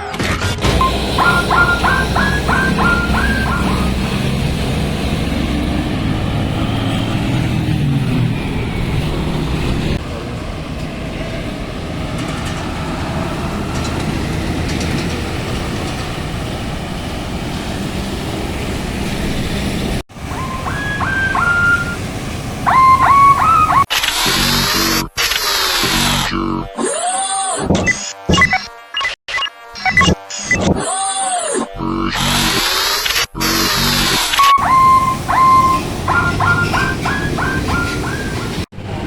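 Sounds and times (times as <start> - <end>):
bus engine and road noise: 0.0 - 26.3, 32.1 - 39.0
multi-note bus horn tune: 0.6 - 6.6.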